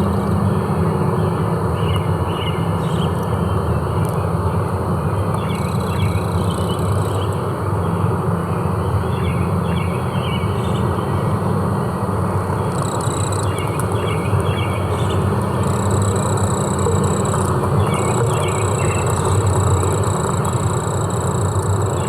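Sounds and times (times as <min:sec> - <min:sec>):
insects buzzing: 0:04.9 - 0:07.4, 0:12.4 - 0:22.0
high steady insect buzz: 0:05.4 - 0:07.3, 0:12.6 - 0:22.0.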